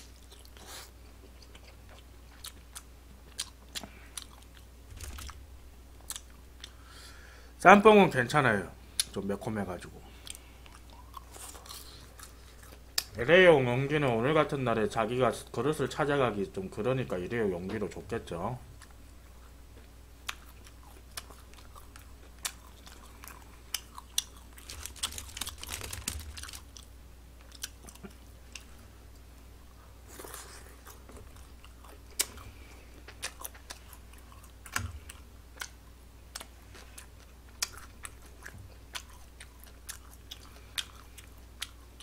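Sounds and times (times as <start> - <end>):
person chewing food: 0.0 - 5.4, 6.0 - 6.9, 10.0 - 13.1, 18.8 - 42.0.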